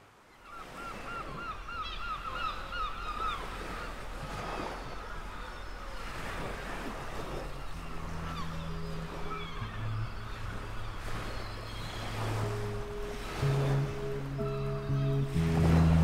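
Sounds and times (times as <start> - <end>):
ocean waves: 0.0 - 16.0
wind: 0.0 - 16.0
honking bird calls: 7.1 - 16.0.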